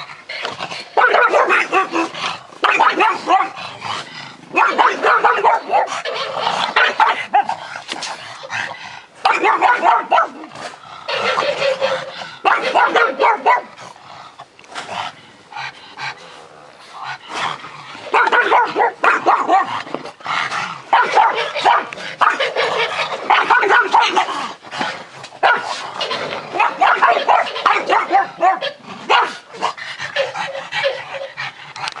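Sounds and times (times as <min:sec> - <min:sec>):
dogs barking and yipping: 0:00.0 - 0:14.0, 0:17.0 - 0:32.0.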